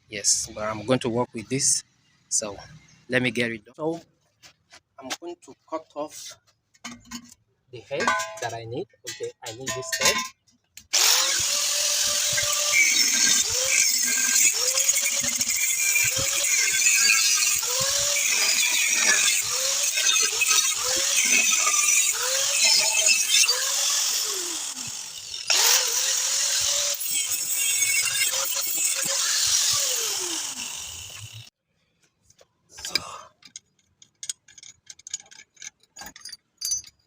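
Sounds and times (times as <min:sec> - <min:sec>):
angle grinder cutting steel: 0:10.9 - 0:31.5.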